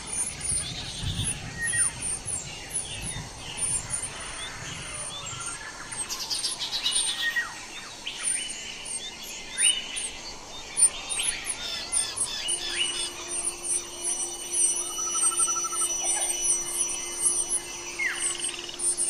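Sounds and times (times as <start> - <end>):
nestlings begging chirps: 0.0 - 19.0
sharp bird chip notes: 10.8 - 19.0.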